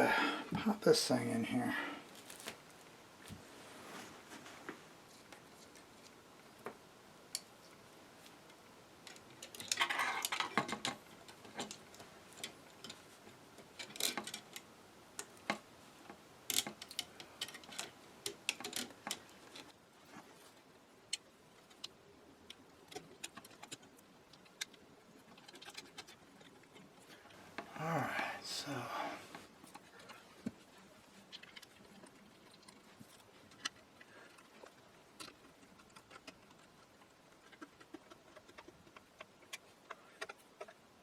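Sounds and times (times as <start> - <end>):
metal and wooden parts clattering: 9.1 - 14.7, 15.3 - 20.3.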